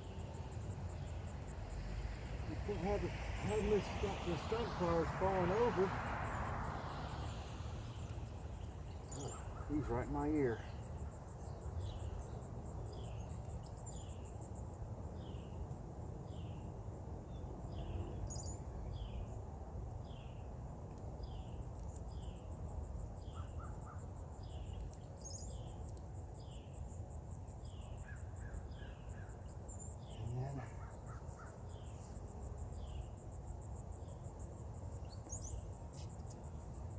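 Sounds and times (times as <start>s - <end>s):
low rumble of wind: 0.0s - 36.9s
high-pitched insect trill: 31.9s - 36.9s.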